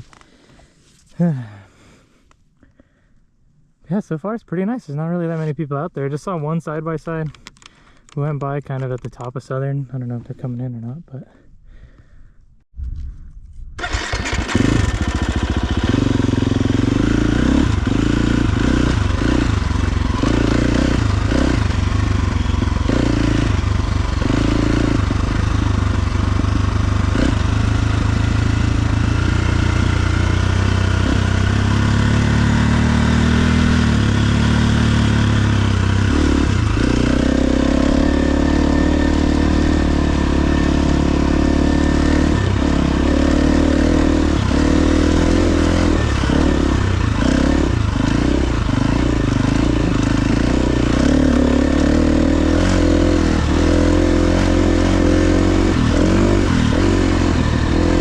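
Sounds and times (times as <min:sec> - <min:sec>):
dirt bike engine revving: 0:13.8 - 0:58.0.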